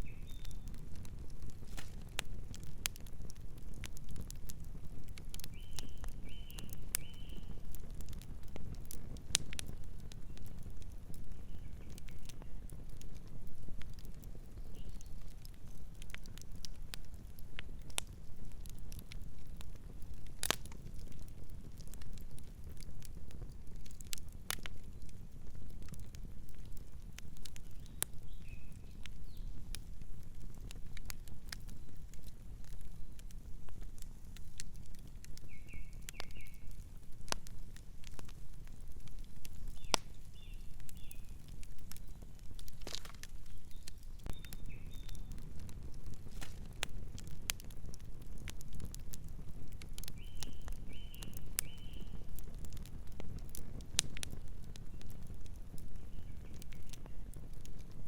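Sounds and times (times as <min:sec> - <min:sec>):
bird chirping: 0:00.0 - 0:00.6, 0:43.5 - 0:45.3
campfire crackling: 0:00.0 - 0:58.0
low rumble of flames: 0:00.0 - 0:58.0
sharp pops from fire: 0:00.0 - 0:58.0.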